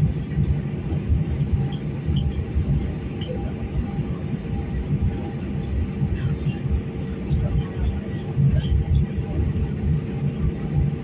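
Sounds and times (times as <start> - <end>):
faint engine hum: 0.0 - 11.0.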